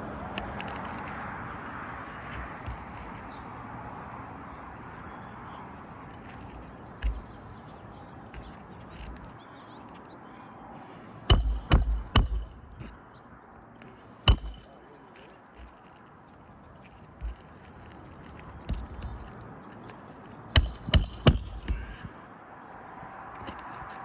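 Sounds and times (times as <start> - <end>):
hammer striking nails: 6.2 - 7.4, 11.3 - 13.0, 14.2 - 15.9, 17.2 - 17.6, 18.7 - 19.3, 20.6 - 22.2.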